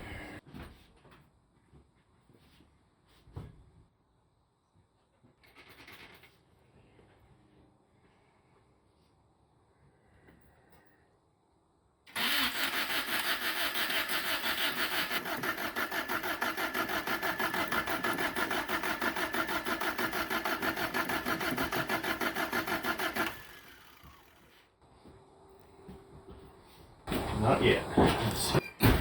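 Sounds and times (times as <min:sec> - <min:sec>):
starter motor cranking engine: 0:12.1 - 0:24.6.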